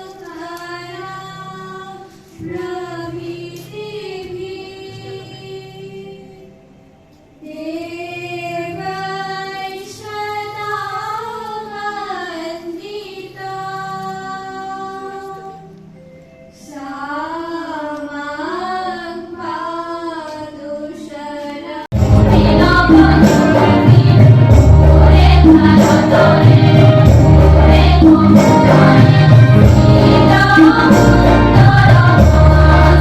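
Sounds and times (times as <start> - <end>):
high voice singing: 16.7 - 33.0
loud music with choir: 21.9 - 33.0.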